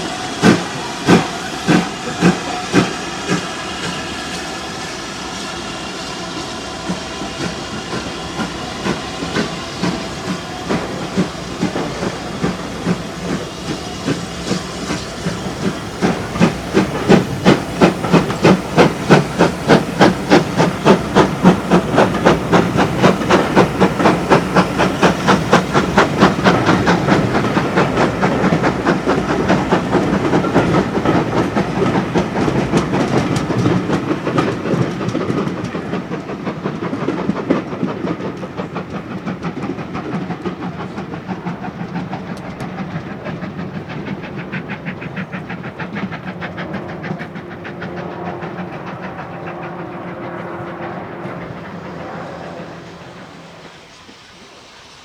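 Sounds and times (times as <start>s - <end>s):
steam locomotive exhaust beats: 0.0s - 55.0s.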